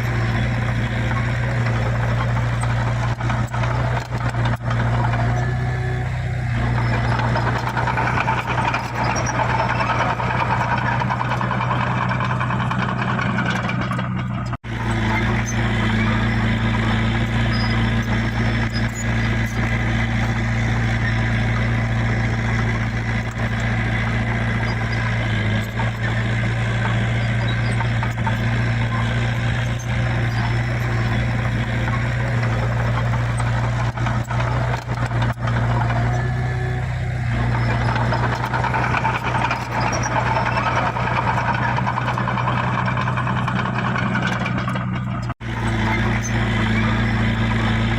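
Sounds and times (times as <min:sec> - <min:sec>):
heavy diesel engine running: 0:00.0 - 0:47.9.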